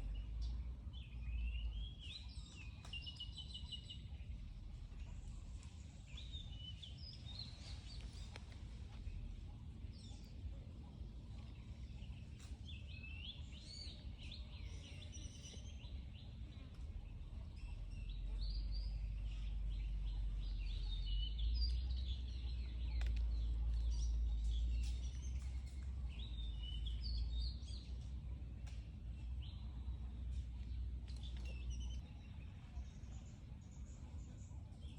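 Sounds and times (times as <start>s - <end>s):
birds chirping: 0.0s - 34.9s
low rumble: 0.0s - 34.9s.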